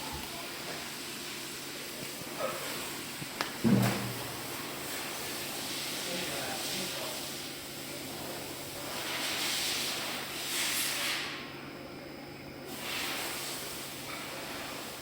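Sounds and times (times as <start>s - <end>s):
welder hissing: 4.2s - 11.4s, 12.7s - 15.0s.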